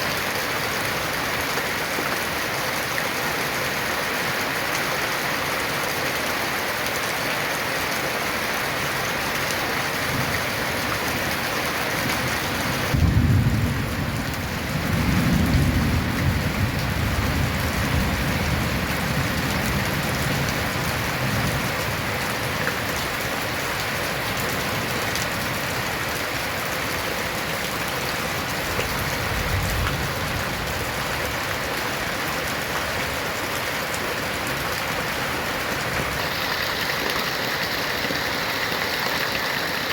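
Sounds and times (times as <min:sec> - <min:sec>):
heavy rain on a tin roof: 0:00.0 - 0:39.9
thunder rumbling: 0:12.9 - 0:19.8.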